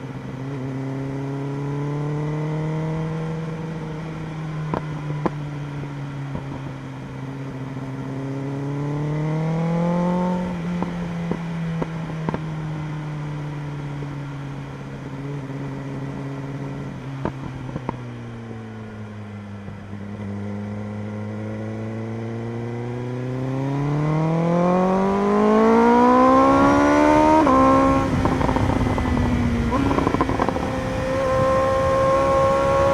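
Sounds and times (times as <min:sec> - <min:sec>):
motorcycle engine revving: 0:19.9 - 0:32.9.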